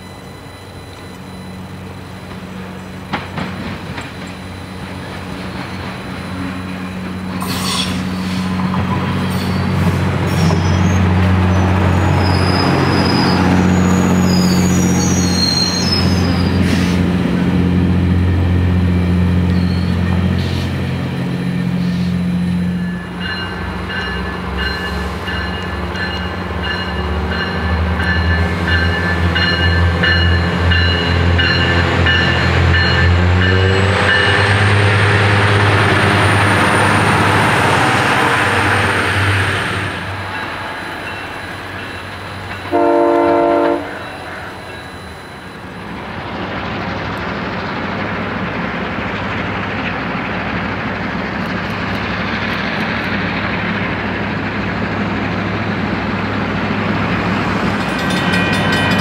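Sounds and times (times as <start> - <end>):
diesel train engine hum: 0.0 - 59.0
high-pitched wheel squeal: 9.3 - 17.0, 19.5 - 20.7.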